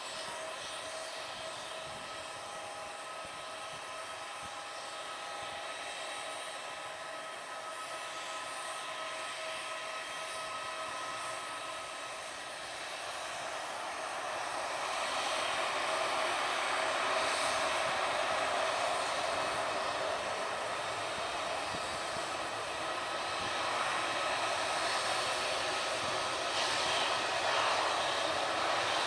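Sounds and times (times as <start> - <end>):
jet engines whining: 10.6 - 29.0.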